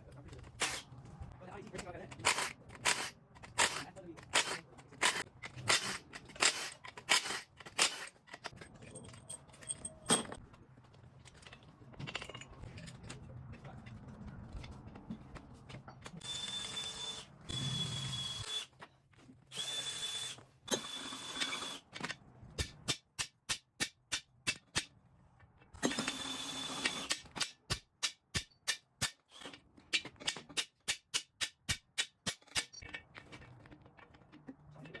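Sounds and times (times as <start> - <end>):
tool clicks and knocks: 27.1 - 34.6.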